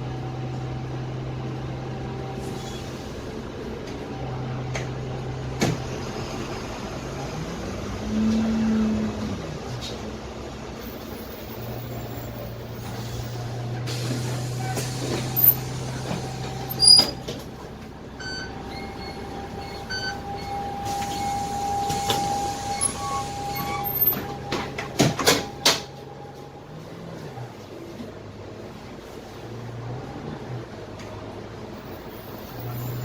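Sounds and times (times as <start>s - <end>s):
bus diesel engine humming: 0.0s - 33.0s
rattles and knocks of bus body: 23.7s - 26.2s.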